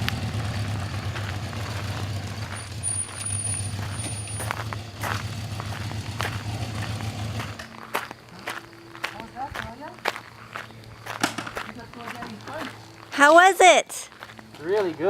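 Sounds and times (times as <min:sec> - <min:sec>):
motorcycle engine running at low revs: 0:00.0 - 0:07.7.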